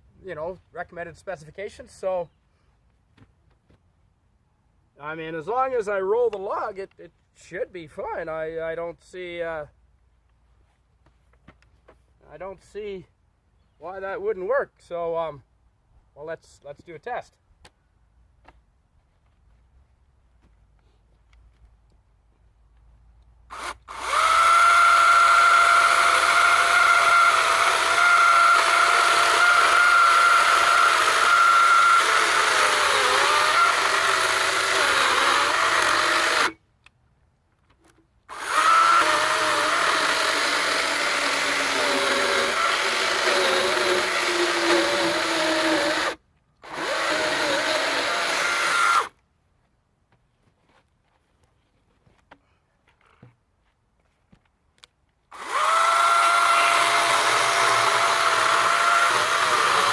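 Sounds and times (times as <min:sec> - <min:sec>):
electric chainsaw cutting log: 0:23.5 - 0:36.6, 0:38.3 - 0:49.1, 0:55.3 - 0:59.9.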